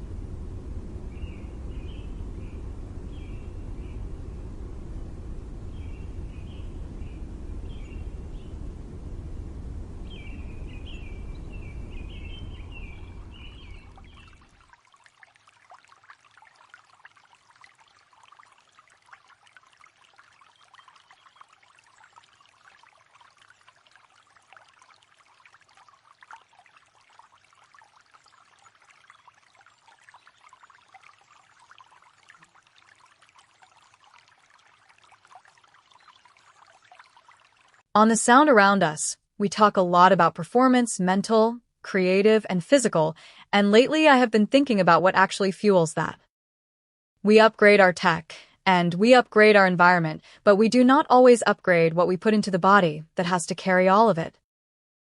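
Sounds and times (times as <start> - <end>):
low outdoor rumble: 0.0 - 14.6
birds chirping: 5.7 - 8.6, 10.0 - 14.4
trickling splashing water: 11.6 - 37.9.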